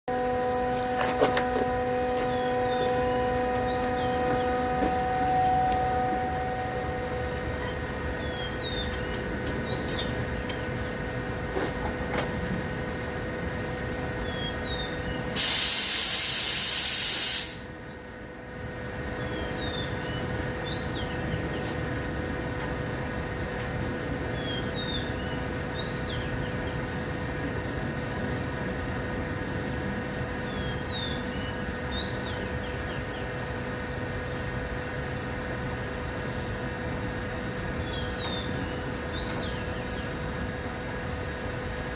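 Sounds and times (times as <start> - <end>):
steady mechanical hum: 0.1 - 41.9
compressed air hissing: 15.3 - 17.7.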